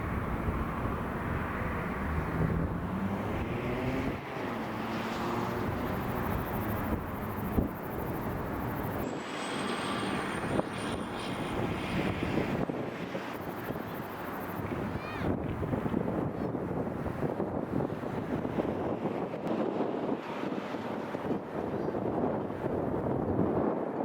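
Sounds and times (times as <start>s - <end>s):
jet engines rumbling: 0.0s - 17.3s.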